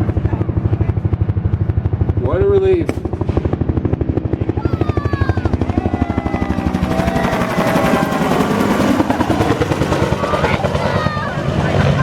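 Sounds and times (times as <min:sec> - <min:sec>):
helicopter rotor chop: 0:00.0 - 0:12.0
helicopter whine: 0:00.0 - 0:12.0.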